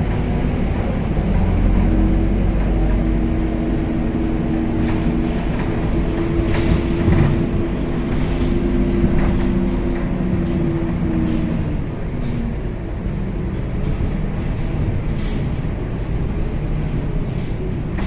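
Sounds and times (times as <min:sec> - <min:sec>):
bus engine droning hum: 0:00.0 - 0:18.0
low road rumble: 0:00.0 - 0:18.0
rattles and knocks: 0:04.1 - 0:12.6.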